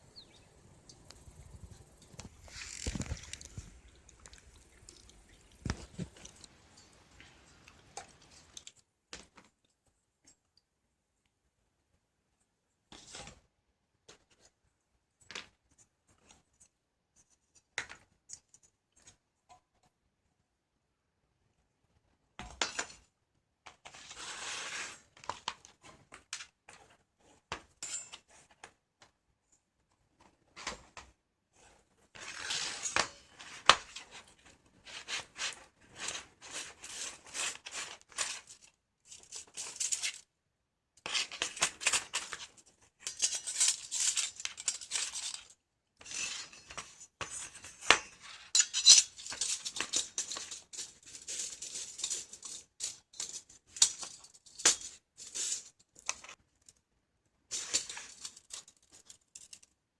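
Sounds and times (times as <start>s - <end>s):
metal parts clinking and scraping: 43.0s - 46.6s, 48.4s - 56.4s, 57.5s - 59.8s.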